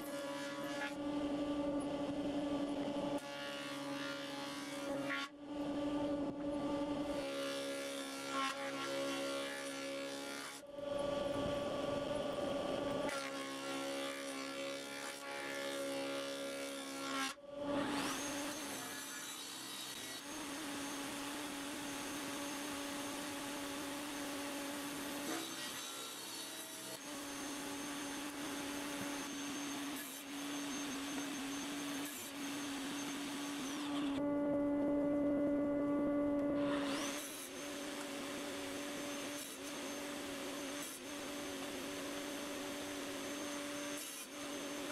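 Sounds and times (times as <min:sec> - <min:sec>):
rush of wood being cut: 0:13.0 - 0:34.2, 0:36.6 - 0:44.9
woodworking machine motor hum: 0:27.0 - 0:44.9.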